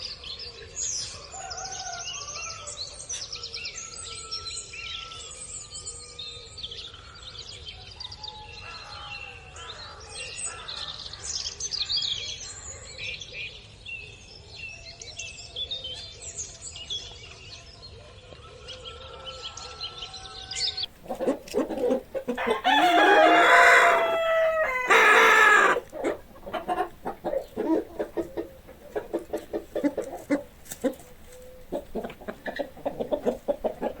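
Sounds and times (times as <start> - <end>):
rooster crowing: 1.2 - 2.8, 22.3 - 26.8
small birds chirping: 19.0 - 34.0
chickens clucking: 20.8 - 34.0.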